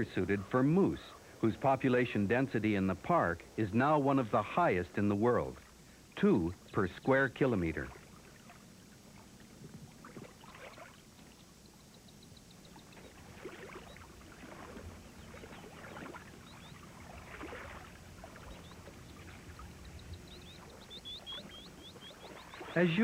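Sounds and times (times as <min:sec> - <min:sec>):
water splashing and sloshing: 0:06.6 - 0:23.0
faint high chirps: 0:18.4 - 0:23.0.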